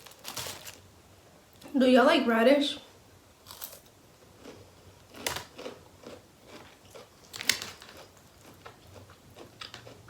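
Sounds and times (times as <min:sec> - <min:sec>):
crunchy food chewing: 0:03.4 - 0:10.0.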